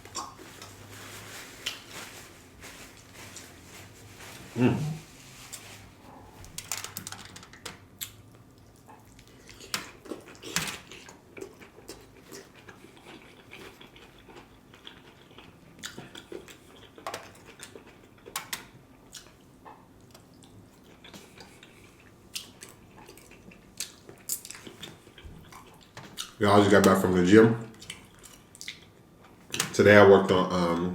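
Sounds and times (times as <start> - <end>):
wet chewing and mouth sounds: 8.0 - 26.4, 27.7 - 29.6.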